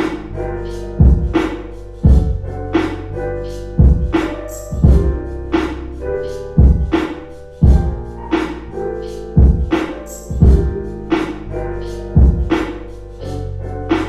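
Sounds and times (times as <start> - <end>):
sustained keyboard chords: 0.0 - 14.0
kick and snare drum beat: 1.0 - 1.5, 2.1 - 2.4, 3.8 - 5.2, 6.6 - 8.0, 9.4 - 10.8, 12.2 - 12.7.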